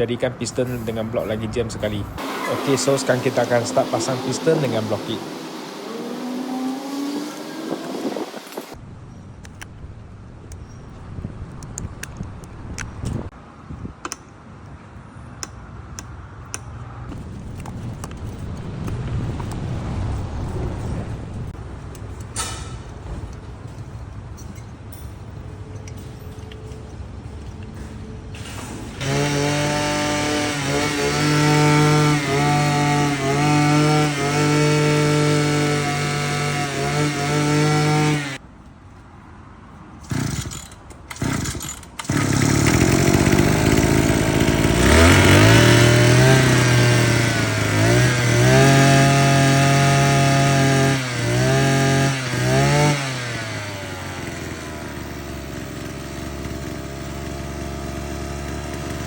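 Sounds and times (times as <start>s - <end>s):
brush cutter engine revving: 0.7s - 8.8s, 29.0s - 38.4s, 40.0s - 59.0s.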